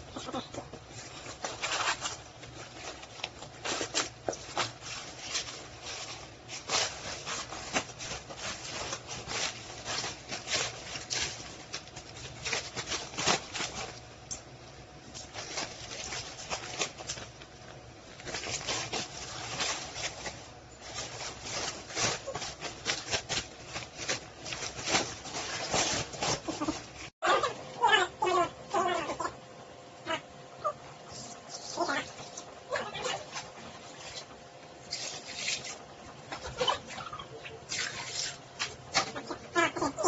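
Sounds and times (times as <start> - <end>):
rustling and rubbing: 0.0 - 14.2, 15.0 - 27.2.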